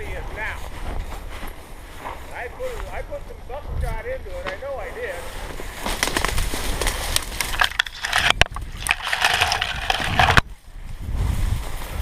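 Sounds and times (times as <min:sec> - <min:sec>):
wind rumble on microphone: 0:00.0 - 0:04.4, 0:06.2 - 0:12.0
dry grass crunching underfoot: 0:04.7 - 0:12.0.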